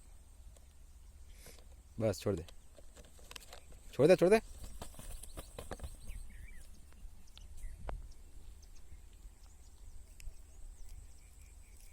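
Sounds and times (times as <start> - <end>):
bird chirps: 3.4 - 11.9.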